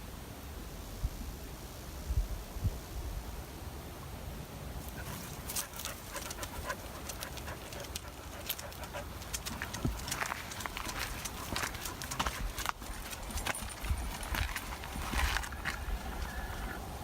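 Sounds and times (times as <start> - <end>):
footsteps crunching on a trail: 4.8 - 16.8.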